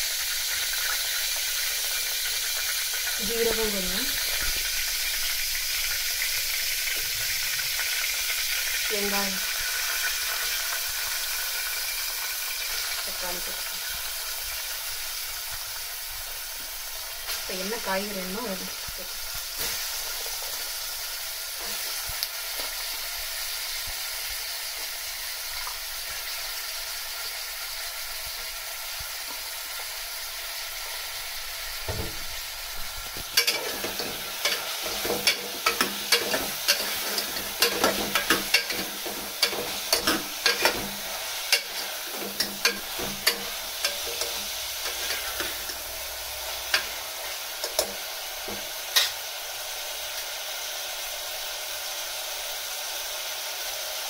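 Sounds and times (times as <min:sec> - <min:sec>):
vegetables sizzling in oil: 0:00.0 - 0:54.0.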